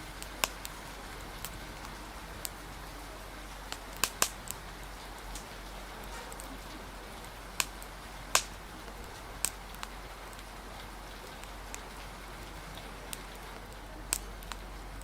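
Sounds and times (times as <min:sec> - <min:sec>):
rain hiss: 0:00.0 - 0:15.0
wood fire popping: 0:00.0 - 0:15.0.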